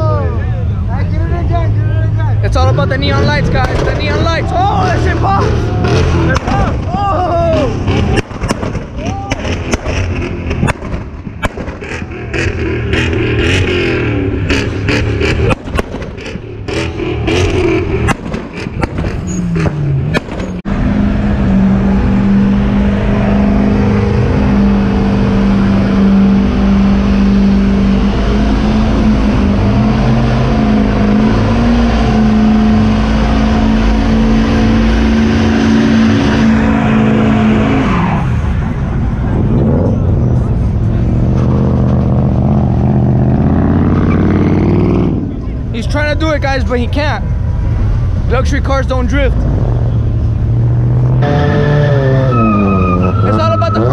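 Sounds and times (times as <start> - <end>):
car engine revving: 0.0 - 53.9
exhaust pops and cracks: 8.0 - 12.1, 15.4 - 16.4, 18.0 - 20.6.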